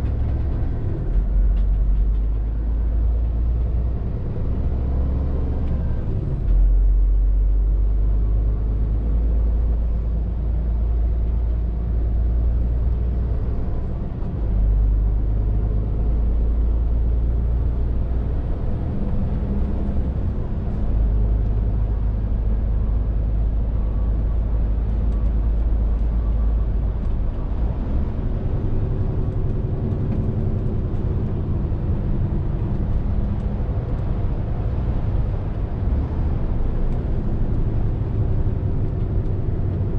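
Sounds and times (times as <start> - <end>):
lorry diesel engine droning: 0.0 - 39.9
road and tyre noise: 0.0 - 39.9.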